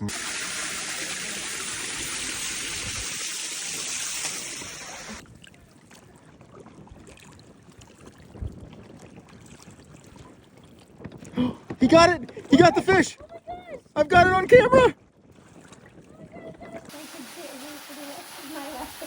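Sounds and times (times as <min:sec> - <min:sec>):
rushing water hiss: 0:00.0 - 0:05.2, 0:16.9 - 0:19.0
paddling in water: 0:00.0 - 0:19.0.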